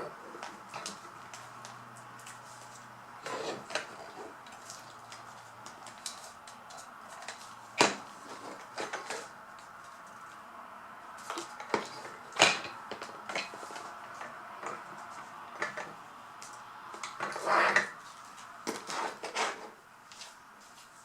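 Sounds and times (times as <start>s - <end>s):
rustling scrape: 2.3s - 5.0s, 17.2s - 21.0s.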